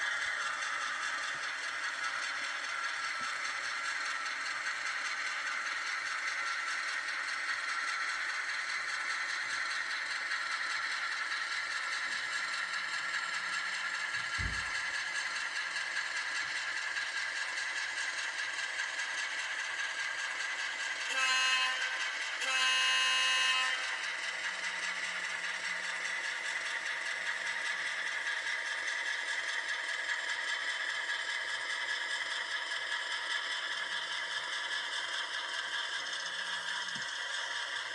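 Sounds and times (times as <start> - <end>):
model train rattling on track: 0.0 - 37.9
model train horn: 21.0 - 24.5.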